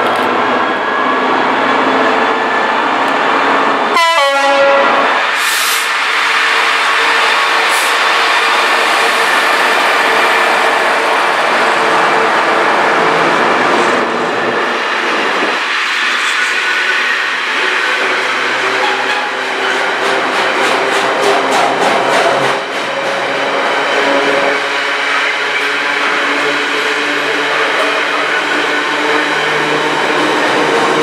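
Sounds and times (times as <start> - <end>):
diesel locomotive engine: 0.0 - 31.0
train horn: 3.9 - 5.2
freight wagons rumbling on rails: 16.2 - 31.0.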